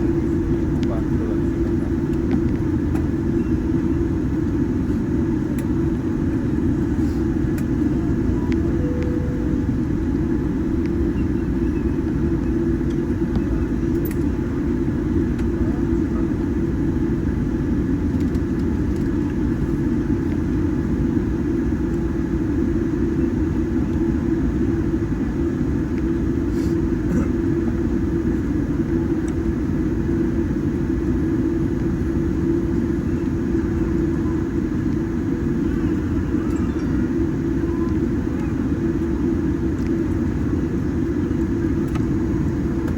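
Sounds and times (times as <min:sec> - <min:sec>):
airplane cabin rumble: 0:00.0 - 0:42.9.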